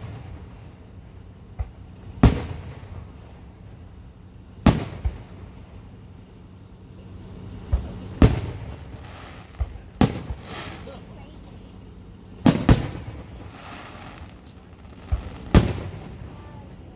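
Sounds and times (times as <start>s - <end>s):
fireworks booming: 0.0s - 5.9s, 7.5s - 16.9s.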